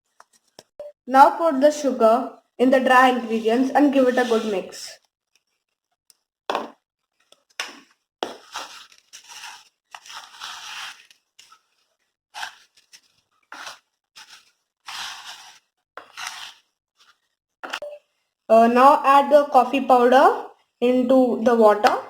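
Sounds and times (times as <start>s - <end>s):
utensil scraping dry mix in bowl: 3.0s - 4.8s, 8.5s - 11.2s, 13.5s - 16.7s.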